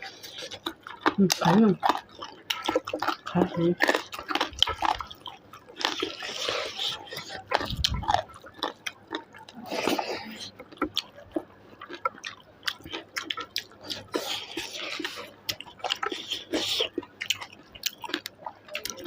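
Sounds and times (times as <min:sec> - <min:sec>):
wet chewing: 0:00.0 - 0:19.0
slurping soup: 0:05.8 - 0:08.0.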